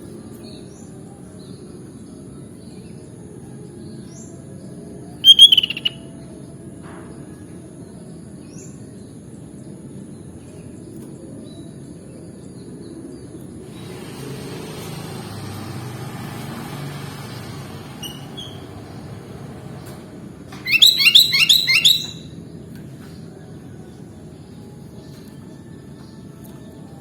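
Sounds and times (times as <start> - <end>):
low outdoor background rumble: 0.0 - 14.9, 15.5 - 27.0
bulbul song notes: 5.3 - 6.0, 20.7 - 22.2.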